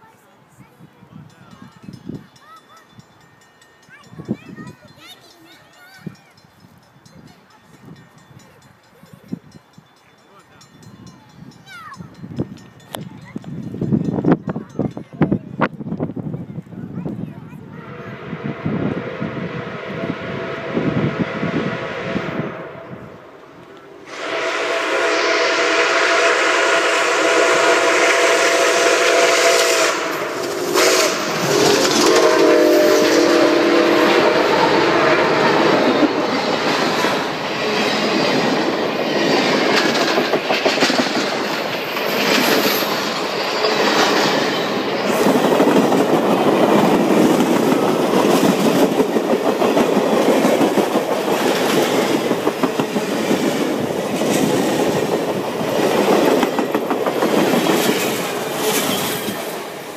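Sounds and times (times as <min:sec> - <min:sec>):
train rumble: 0:01.0 - 0:59.9
wheels clacking on rails: 0:01.2 - 0:17.6, 0:23.4 - 0:59.9
train horn blast: 0:17.7 - 0:38.3.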